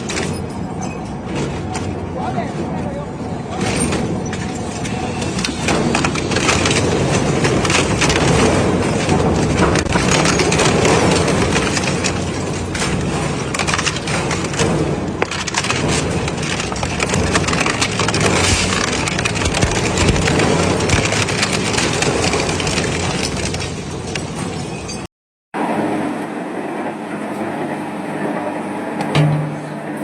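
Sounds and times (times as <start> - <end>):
industrial shredder grinding: 4.0 - 24.4.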